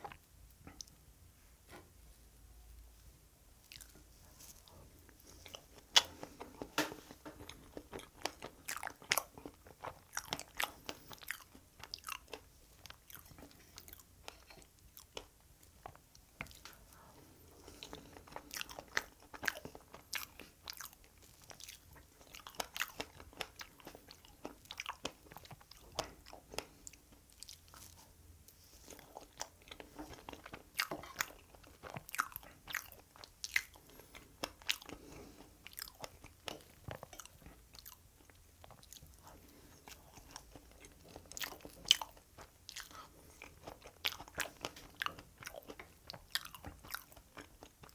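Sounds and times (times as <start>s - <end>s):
person chewing close to microphone: 3.6s - 47.9s.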